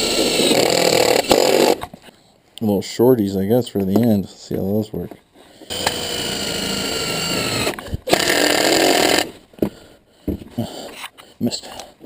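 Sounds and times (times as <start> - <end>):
power drill driving screws: 0.0 - 1.9, 5.7 - 9.4.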